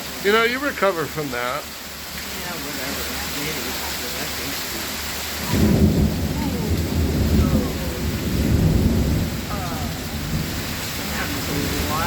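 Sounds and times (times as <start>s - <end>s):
heavy rain: 0.0s - 12.0s
thunder rumbling: 5.4s - 12.0s.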